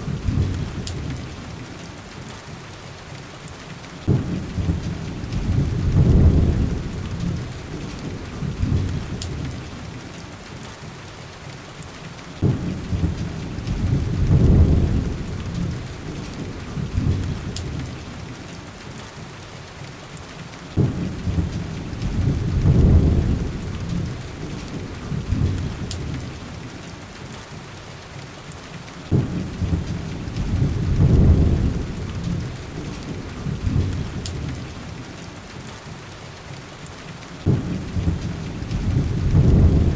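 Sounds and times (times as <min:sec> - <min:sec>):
heavy rain: 0:00.0 - 0:39.9
thunder rolling: 0:04.1 - 0:09.7, 0:12.4 - 0:18.1, 0:20.8 - 0:26.4, 0:29.1 - 0:34.7, 0:37.4 - 0:39.9.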